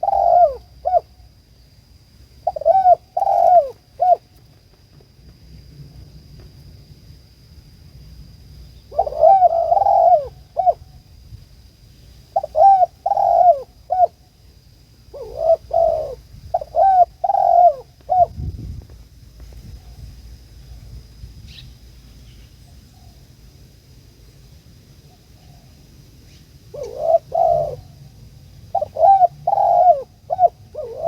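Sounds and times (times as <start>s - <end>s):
dove cooing: 0.0s - 1.2s, 2.4s - 4.4s, 8.9s - 11.0s, 12.3s - 14.3s, 15.1s - 18.4s, 26.7s - 31.0s.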